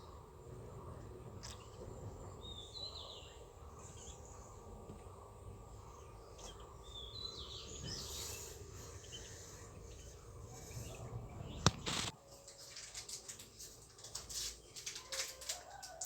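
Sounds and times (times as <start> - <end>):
sharp click: 11.6 - 12.1
brief rustle: 11.6 - 16.0.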